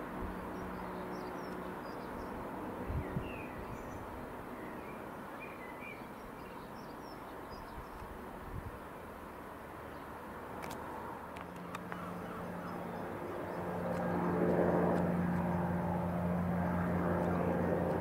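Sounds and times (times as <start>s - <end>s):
small birds chirping: 0.2s - 8.1s, 11.4s - 18.0s
outdoor background rumble: 6.2s - 18.0s.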